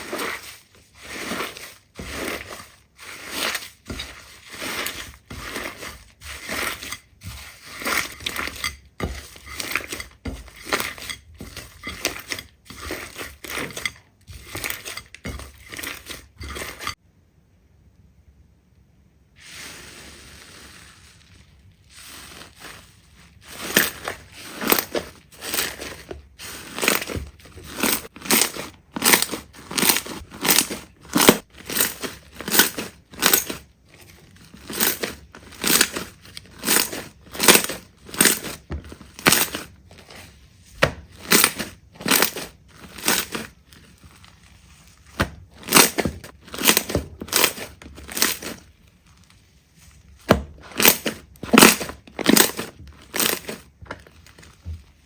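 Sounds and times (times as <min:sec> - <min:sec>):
slime squishing by hand: 0:00.0 - 0:17.0, 0:19.4 - 0:55.0.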